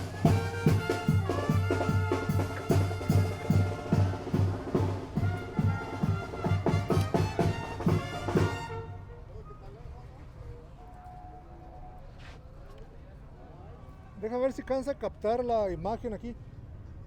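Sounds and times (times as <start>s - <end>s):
bass drum beat: 0.0s - 8.8s
brass band playing: 0.0s - 9.0s.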